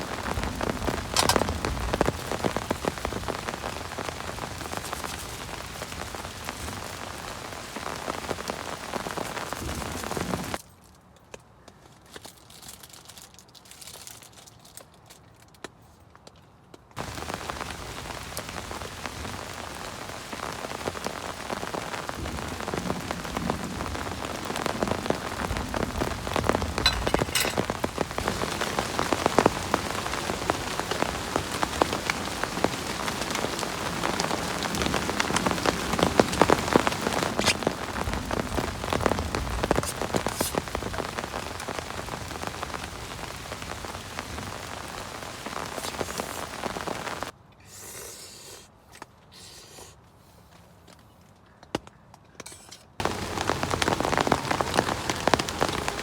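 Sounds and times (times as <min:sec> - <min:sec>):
heavy rain falling: 0:00.0 - 0:10.6, 0:17.0 - 0:47.4, 0:53.0 - 0:56.0.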